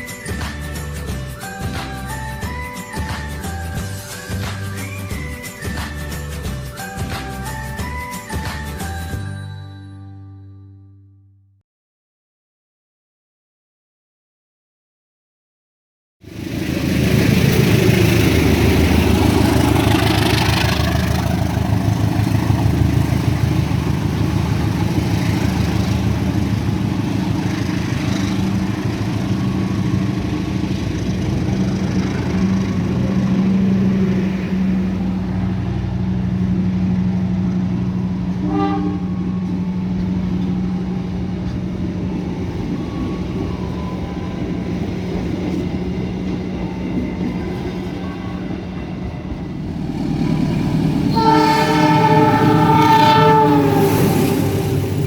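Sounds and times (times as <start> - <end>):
train rumbling past: 0.0 - 9.1, 16.2 - 55.0
train horn toot: 38.3 - 40.1, 50.9 - 55.0.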